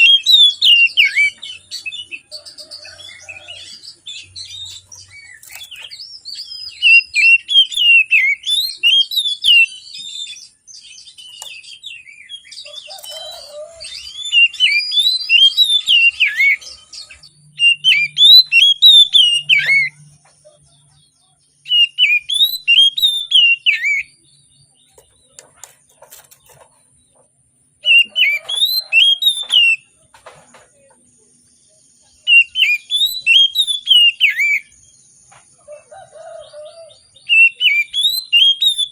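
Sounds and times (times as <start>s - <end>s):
bird singing whistled phrases: 0.0s - 20.1s, 21.6s - 24.2s, 27.8s - 29.9s, 32.2s - 34.8s, 37.2s - 38.9s.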